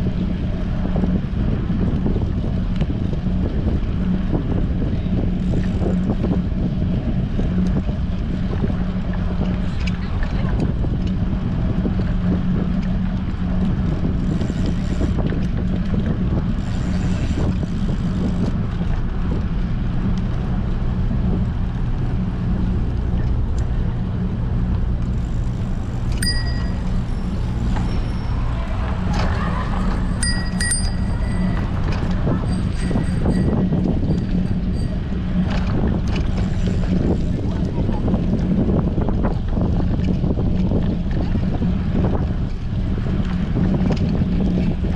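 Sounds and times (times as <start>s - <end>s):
wind buffeting microphone: 0.0s - 44.9s
bicycle bells ringing: 25.4s - 36.5s.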